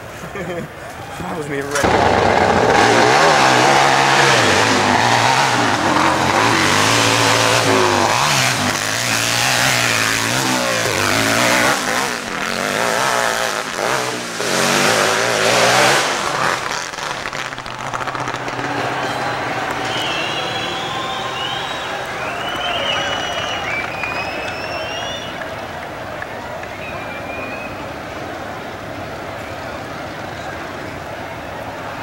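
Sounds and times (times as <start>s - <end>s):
motorcycle engine revving: 1.7s - 25.4s.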